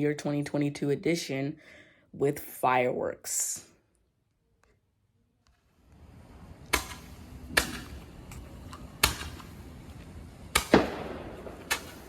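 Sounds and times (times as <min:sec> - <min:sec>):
steady background hiss: 0:05.5 - 0:12.0
fireworks bangs with echo: 0:10.4 - 0:12.0.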